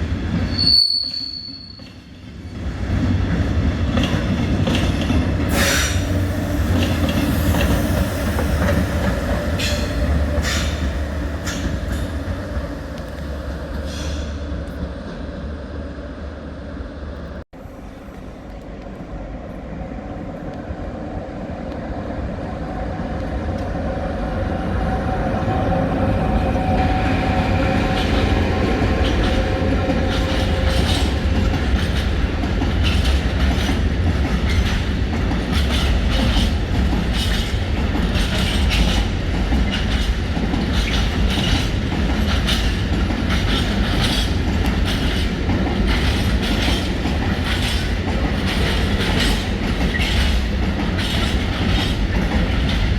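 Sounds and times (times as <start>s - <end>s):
train rumble: 1.4s - 52.9s
wheels clacking over rail joints: 27.9s - 52.9s.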